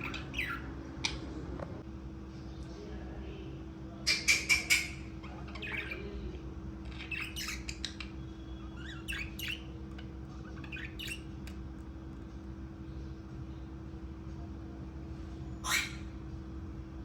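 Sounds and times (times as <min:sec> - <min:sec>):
budgerigars squawking and chirping: 0:00.0 - 0:01.4, 0:04.1 - 0:06.2, 0:06.9 - 0:11.6, 0:15.6 - 0:16.2
steady low hum: 0:00.0 - 0:17.0.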